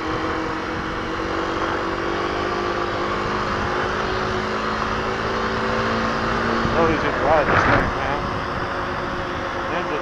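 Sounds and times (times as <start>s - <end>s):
motorcycle engine running: 0.0s - 10.0s
wind rush over microphone: 5.8s - 10.0s.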